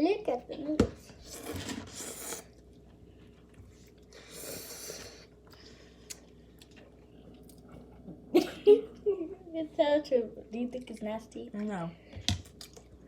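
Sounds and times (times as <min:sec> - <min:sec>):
person chewing noodles: 0:01.2 - 0:02.8.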